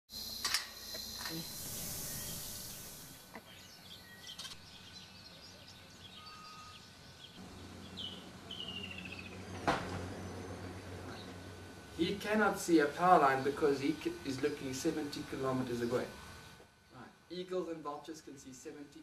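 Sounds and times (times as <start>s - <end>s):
hiss: 0.1s - 3.2s
birds chirping and calling: 1.8s - 9.6s.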